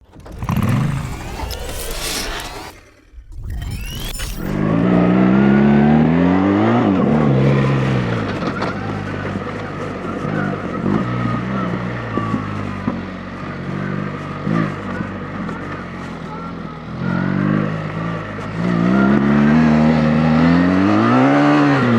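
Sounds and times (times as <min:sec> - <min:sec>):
motorcycle engine accelerating: 0:00.0 - 0:21.9.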